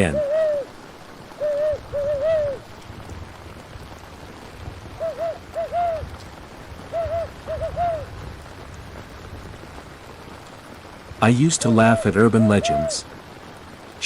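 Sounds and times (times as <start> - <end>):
owl hooting: 0.0 - 0.7, 1.4 - 2.6, 5.0 - 6.1, 6.9 - 8.1, 11.7 - 13.0
steady rain: 0.0 - 14.0.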